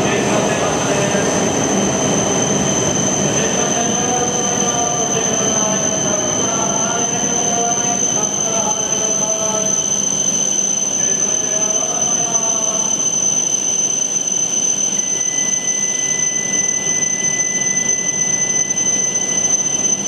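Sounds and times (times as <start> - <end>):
train running rumble: 0.0 - 8.2
high-pitched whine: 0.0 - 20.0.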